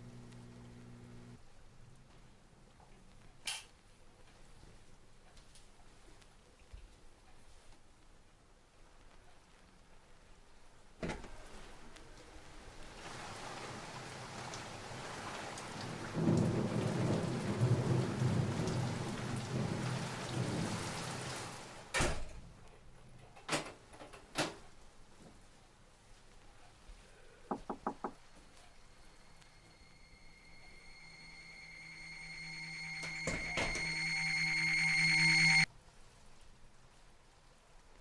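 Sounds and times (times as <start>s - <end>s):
heavy rain: 11.4s - 22.0s
rumbling thunder: 15.8s - 21.6s.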